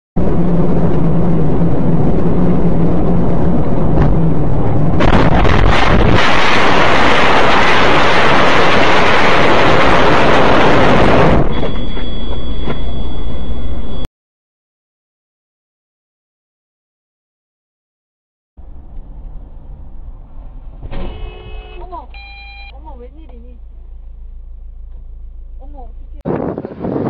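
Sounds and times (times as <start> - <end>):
engine and road hum: 0.2 - 14.1, 18.6 - 27.0
loud harsh crash noise: 4.9 - 11.8
sharp cracks: 5.0 - 10.6.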